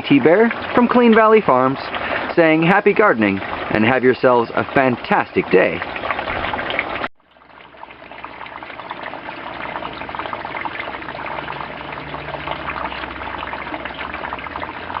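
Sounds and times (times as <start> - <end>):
water splashing and trickling: 0.0 - 15.0.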